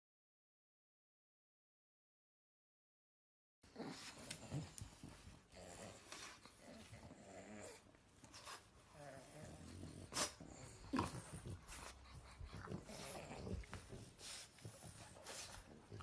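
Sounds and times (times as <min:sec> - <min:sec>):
dog grumbling growls: 0:05.5 - 0:08.0, 0:08.9 - 0:11.6, 0:12.5 - 0:14.0.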